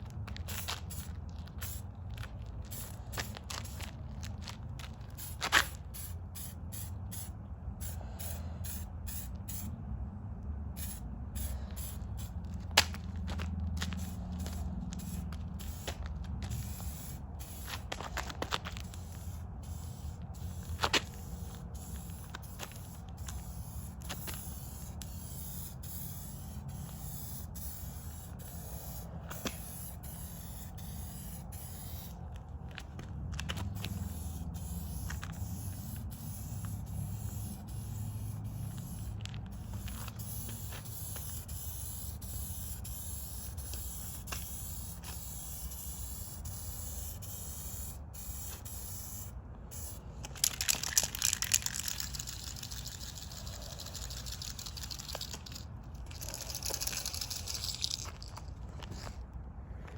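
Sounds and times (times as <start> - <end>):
aerosol can spraying: 18.8 - 32.1, 33.7 - 55.6.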